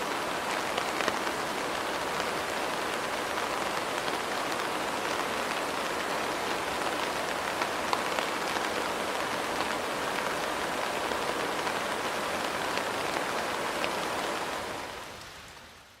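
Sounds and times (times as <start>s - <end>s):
steady rainfall hiss: 0.0s - 16.0s.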